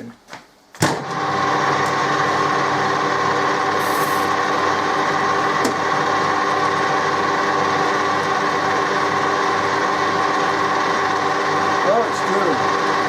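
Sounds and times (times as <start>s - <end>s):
electric drill cutting metal: 3.7s - 4.4s, 9.6s - 13.0s.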